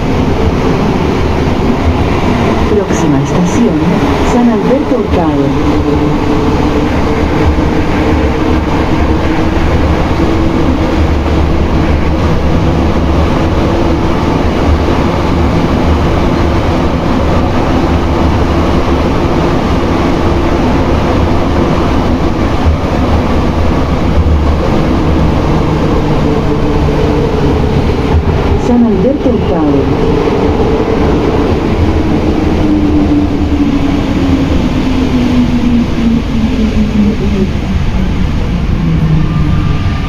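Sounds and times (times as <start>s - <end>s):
metro car running rumble: 0.0s - 40.0s.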